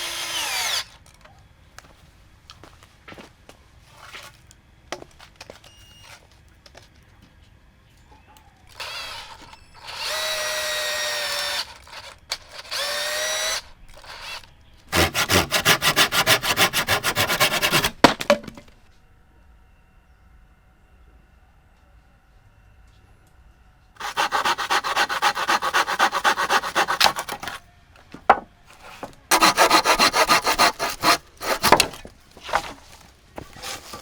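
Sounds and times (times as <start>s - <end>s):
power drill running: 0.0s - 1.0s, 8.8s - 17.8s, 24.0s - 27.0s.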